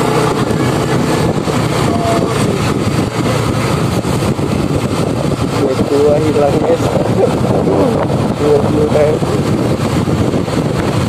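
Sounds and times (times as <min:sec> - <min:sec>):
road noise: 0:00.0 - 0:11.0
scooter engine running: 0:00.0 - 0:11.0
wind noise on microphone: 0:00.0 - 0:11.0.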